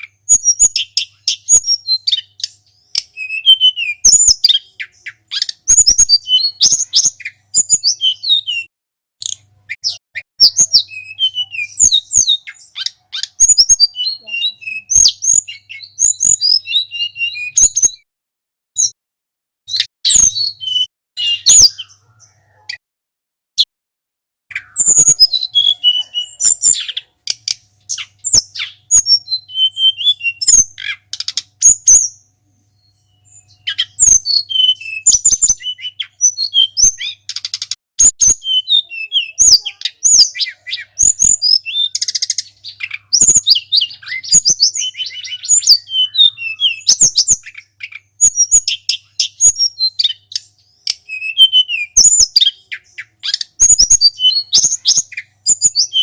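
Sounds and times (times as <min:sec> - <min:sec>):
songbird chirping and whistling: 0:00.0 - 0:18.1, 0:18.8 - 0:19.0, 0:19.7 - 0:22.8, 0:24.5 - 0:56.0
sharp clicks: 0:31.1 - 0:31.5, 0:37.3 - 0:37.8.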